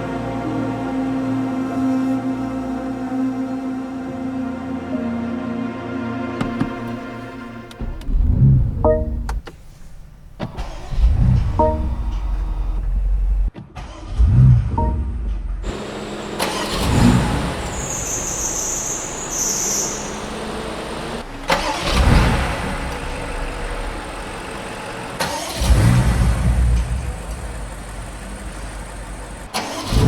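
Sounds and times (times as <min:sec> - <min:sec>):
car engine revving: 0:06.4 - 0:13.5, 0:15.6 - 0:30.0.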